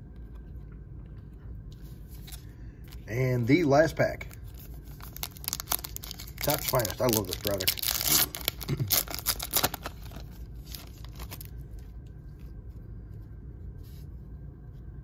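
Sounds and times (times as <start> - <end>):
foil wrapper tearing and crinkling: 4.5 - 11.6
cards rustling and tapping: 4.6 - 11.5.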